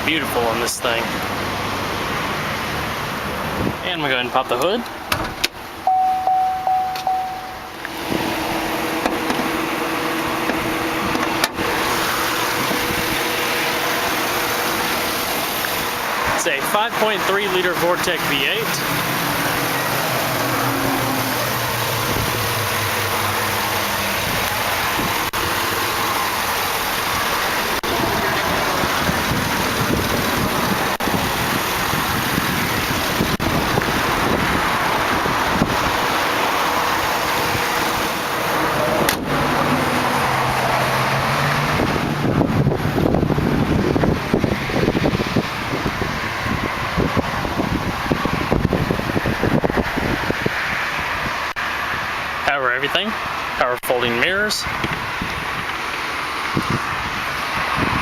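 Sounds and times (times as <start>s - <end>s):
car engine idling: 0.0s - 50.2s
vehicle warning chime: 5.8s - 8.0s.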